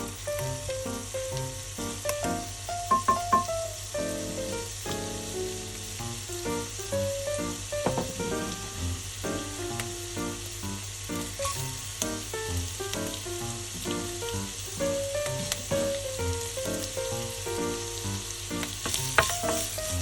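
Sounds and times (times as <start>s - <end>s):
melodic background music: 0.0s - 5.0s
rice sizzling in a frying pan: 0.0s - 20.0s.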